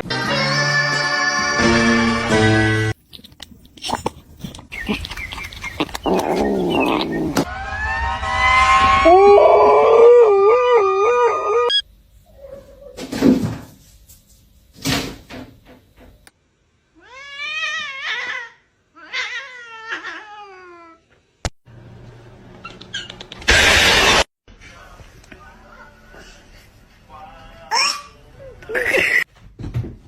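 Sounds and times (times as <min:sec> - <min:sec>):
cats meowing and yowling: 0:04.7 - 0:07.5.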